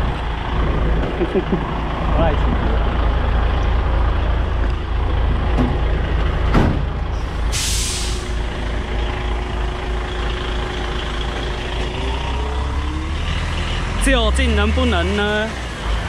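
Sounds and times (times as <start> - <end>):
truck diesel engine running: 0.0 - 16.0
air brake hiss: 7.2 - 8.4.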